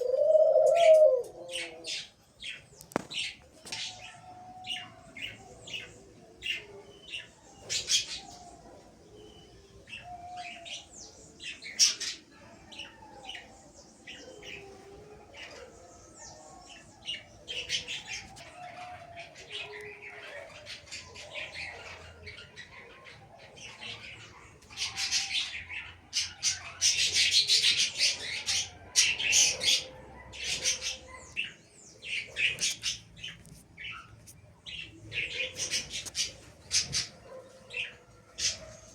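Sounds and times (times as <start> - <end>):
caged birds chirping: 0.0 - 38.9.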